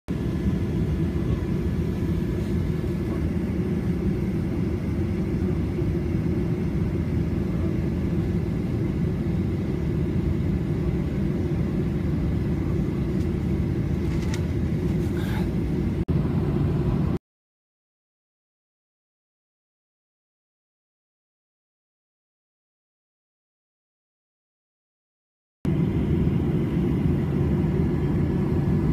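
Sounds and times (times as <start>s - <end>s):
airliner cabin jet engine rumble: 0.1s - 17.2s, 25.7s - 28.9s.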